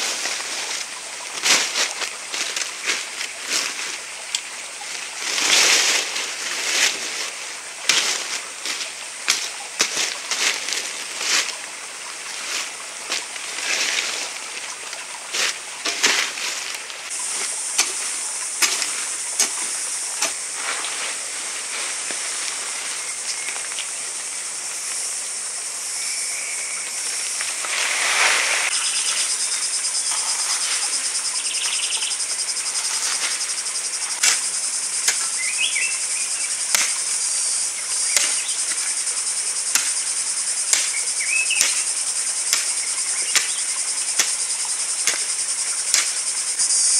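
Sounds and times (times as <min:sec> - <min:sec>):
insects trilling: 0:00.0 - 0:46.9.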